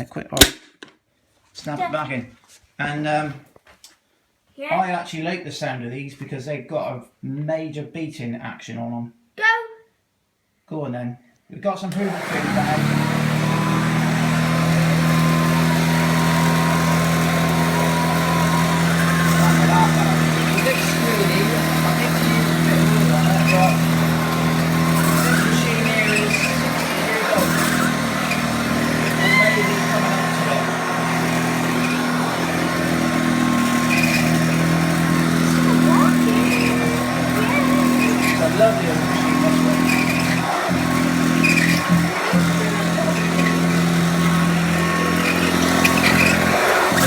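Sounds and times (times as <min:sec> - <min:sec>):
upright vacuum cleaner running: 0:11.9 - 0:47.0.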